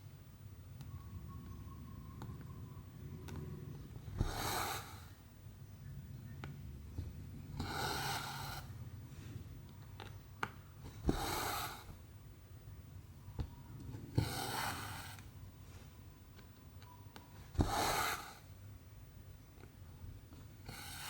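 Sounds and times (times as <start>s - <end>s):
thread rasping through canvas: 10.8s - 12.0s, 17.4s - 18.5s.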